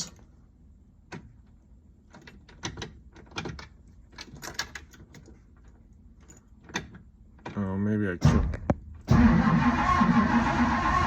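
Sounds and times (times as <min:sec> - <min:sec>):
starter solenoid rapid clicking: 0:09.0 - 0:11.0.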